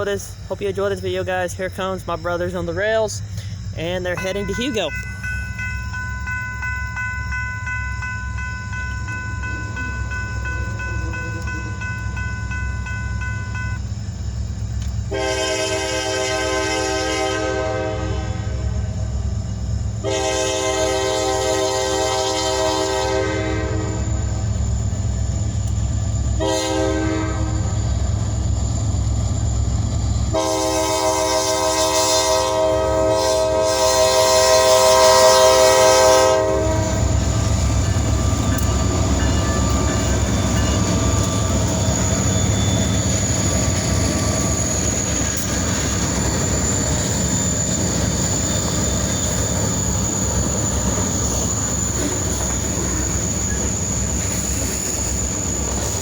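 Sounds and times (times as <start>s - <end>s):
train rumbling past: 0.0s - 56.0s
locomotive air horn: 15.1s - 18.9s, 20.0s - 24.3s, 26.4s - 27.8s, 30.3s - 37.9s
wheels squealing: 33.9s - 56.0s.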